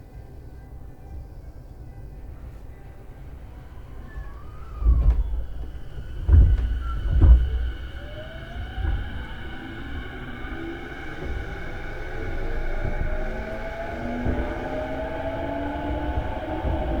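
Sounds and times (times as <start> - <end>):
train running rumble: 0.0 - 17.0
train motor whine: 2.2 - 17.0
heavy thumps: 3.8 - 9.6.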